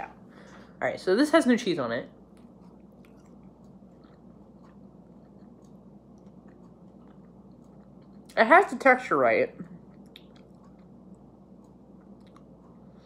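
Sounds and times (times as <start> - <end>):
low steady hum: 0.0 - 13.0
person chewing faintly: 2.1 - 8.4, 9.5 - 13.0
wet mouth clicks: 9.9 - 11.0.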